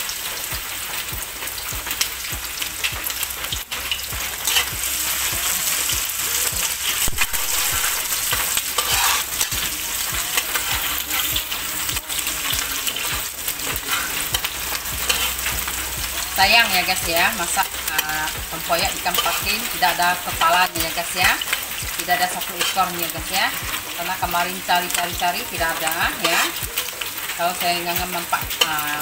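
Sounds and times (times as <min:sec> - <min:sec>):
garlic sizzling in hot oil: 0:00.0 - 0:29.0
metal spatula scraping a wok: 0:02.5 - 0:20.7, 0:21.4 - 0:23.9, 0:25.8 - 0:26.6.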